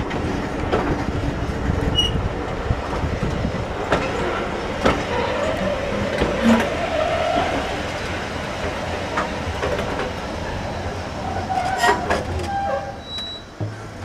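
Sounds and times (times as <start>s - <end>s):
train wheels running on rails: 0.0s - 14.0s
wheel squeals: 1.9s - 2.2s, 11.4s - 13.5s.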